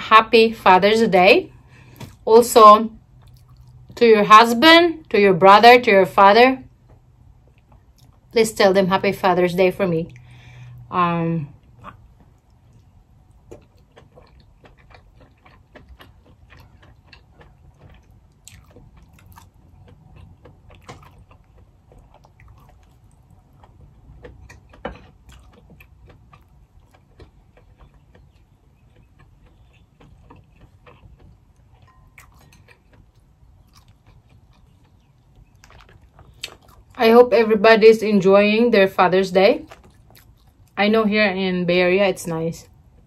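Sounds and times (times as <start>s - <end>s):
person chewing: 3.0s - 4.0s, 6.9s - 8.3s, 11.6s - 37.0s, 39.6s - 40.8s.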